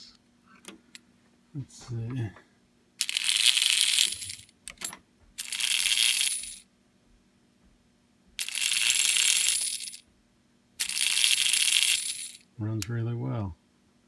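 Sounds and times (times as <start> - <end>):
toy train motor whirring: 3.0 - 4.8, 5.4 - 6.6, 8.4 - 10.0, 10.8 - 12.4.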